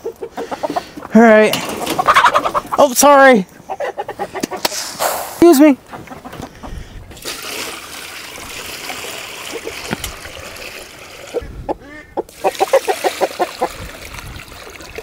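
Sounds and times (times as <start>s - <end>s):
hens clucking: 0.0s - 7.2s, 8.9s - 13.9s
water pouring into container: 7.2s - 11.5s, 12.3s - 15.0s.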